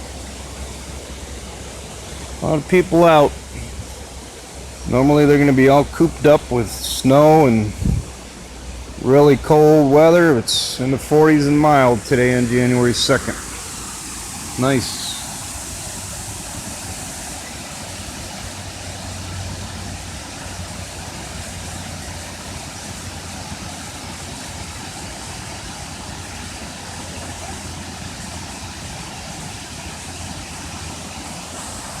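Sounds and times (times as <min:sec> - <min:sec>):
rush of falling water: 0:00.0 - 0:32.0
low rumble: 0:07.7 - 0:08.4.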